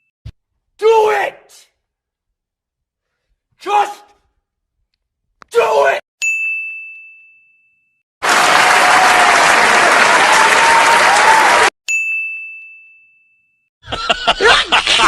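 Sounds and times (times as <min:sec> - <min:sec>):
crowd applause: 0:08.2 - 0:11.7
person laughing: 0:13.8 - 0:15.0.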